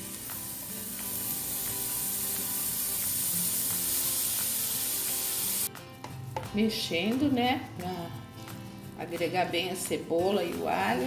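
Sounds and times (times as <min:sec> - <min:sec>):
hot oil sizzling in a pan: 0:00.0 - 0:05.7.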